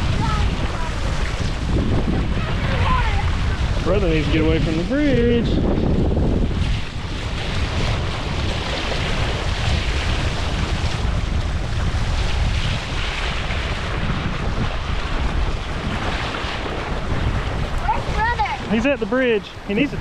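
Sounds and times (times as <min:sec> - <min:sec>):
water splashing along a boat: 0:00.0 - 0:20.0
wind buffeting microphone: 0:00.0 - 0:20.0.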